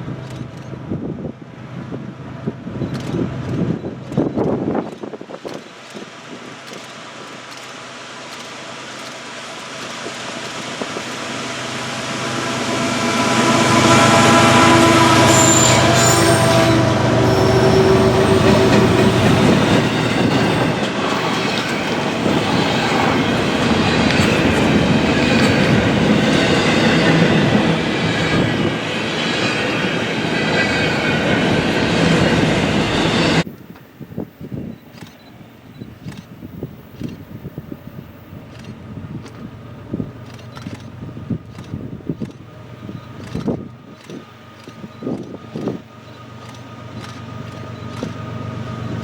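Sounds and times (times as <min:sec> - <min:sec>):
train wheels running on rails: 0:00.0 - 0:49.0
high wheel squeal: 0:11.0 - 0:33.5.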